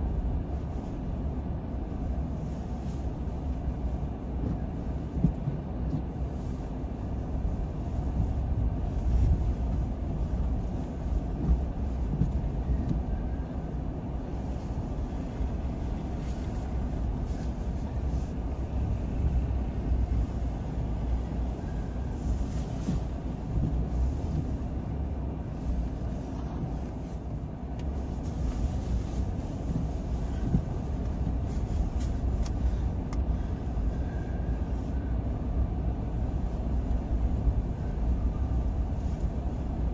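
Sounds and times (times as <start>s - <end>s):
car engine rumble: 0.0s - 39.9s
tyre road noise: 0.0s - 39.9s.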